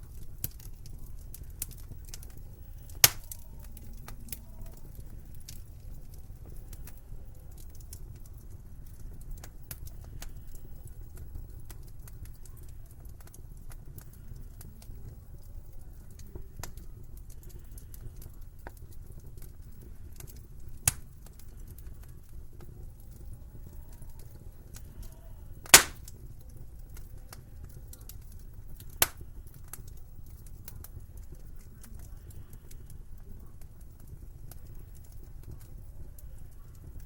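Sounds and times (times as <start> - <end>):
low steady fire rumble: 0.0 - 37.0
wood fire crackling: 0.0 - 37.0
loud pop of fire: 2.9 - 3.4, 25.6 - 26.2, 28.9 - 29.2.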